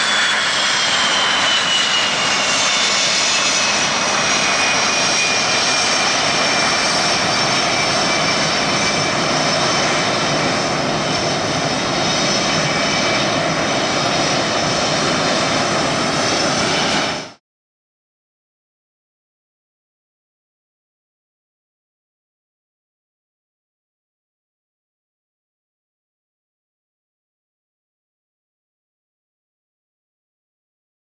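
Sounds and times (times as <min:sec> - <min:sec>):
jet engine whine: 0:00.0 - 0:17.4.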